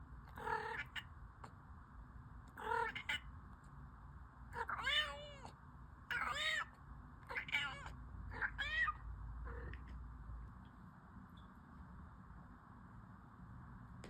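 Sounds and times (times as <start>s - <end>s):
cat meowing: 0.4s - 1.0s, 2.6s - 3.2s, 4.6s - 5.5s, 6.1s - 6.7s, 7.3s - 9.9s.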